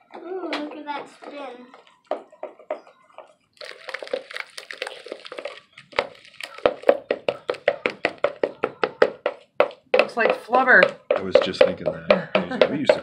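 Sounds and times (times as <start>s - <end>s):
wet slime squishing: 1.6s - 8.0s.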